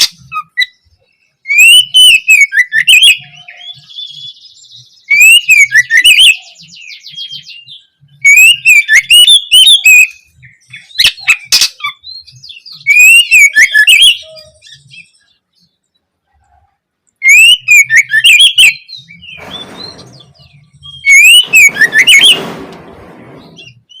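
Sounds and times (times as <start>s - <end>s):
bird singing whistled notes: 0.0s - 15.8s, 17.2s - 22.5s, 23.4s - 24.0s
buzzy bird trill: 17.2s - 24.0s.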